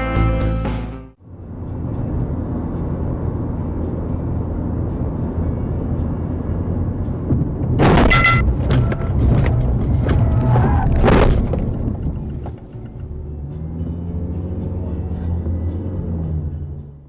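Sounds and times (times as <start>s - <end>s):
engine and road hum: 0.0s - 17.0s
knocks and clatter: 7.2s - 13.1s
loud vehicle crash: 7.3s - 12.9s.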